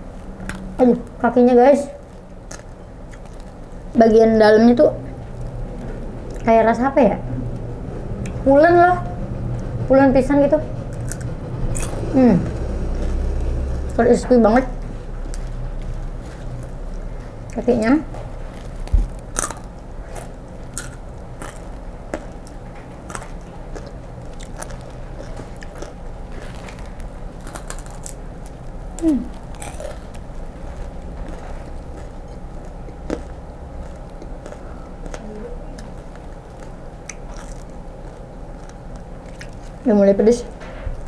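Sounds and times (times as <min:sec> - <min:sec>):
person crunching fried insects: 0:02.0 - 0:03.9, 0:10.9 - 0:12.0, 0:18.4 - 0:39.9.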